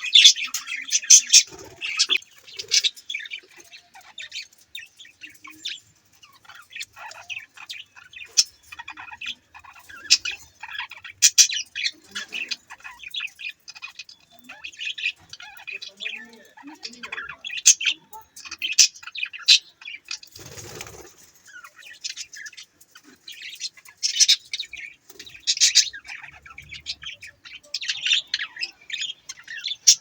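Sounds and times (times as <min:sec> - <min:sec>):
budgerigars chirping: 0:00.0 - 0:30.0.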